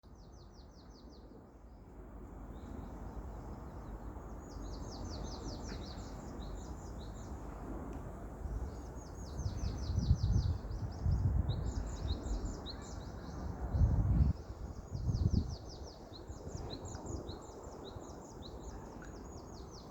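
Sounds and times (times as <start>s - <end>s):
wind: 0.0s - 19.9s
wind gusts buffeting microphone: 4.4s - 19.8s.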